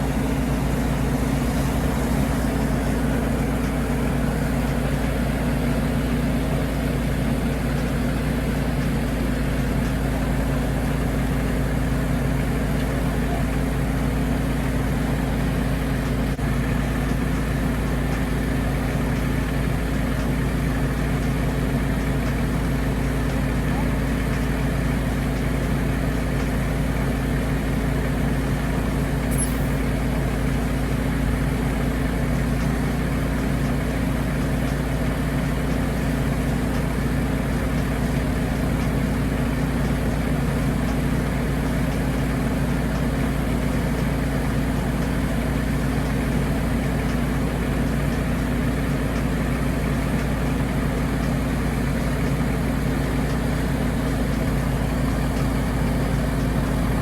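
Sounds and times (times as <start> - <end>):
vehicle engine running steadily: 0.0 - 57.0
brief high squeak: 29.3 - 29.9.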